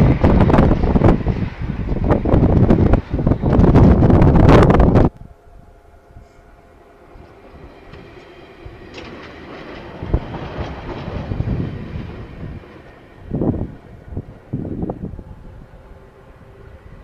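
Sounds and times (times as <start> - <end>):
train wheels rumbling on rail: 0.0 - 17.0
knocks and clatter: 7.2 - 13.0.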